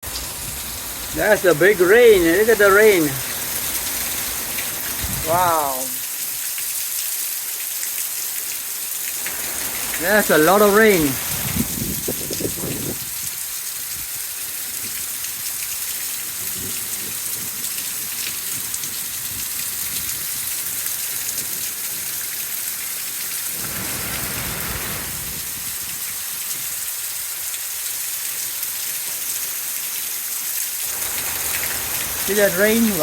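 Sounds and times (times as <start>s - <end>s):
heavy rain pouring: 0.0s - 33.0s.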